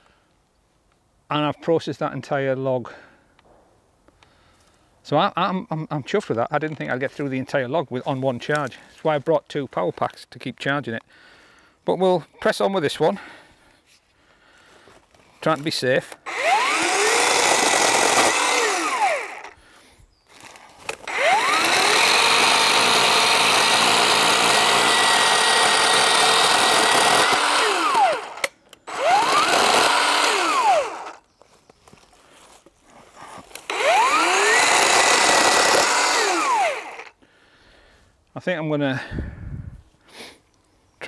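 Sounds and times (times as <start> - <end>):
electric chainsaw cutting log: 16.2 - 19.6, 20.4 - 31.2, 33.5 - 37.1.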